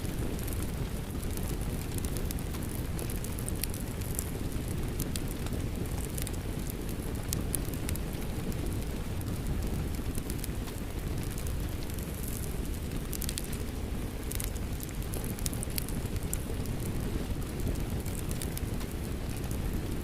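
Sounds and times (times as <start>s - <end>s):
steady rain: 0.0s - 20.0s
wood fire crackling and popping: 0.0s - 20.0s.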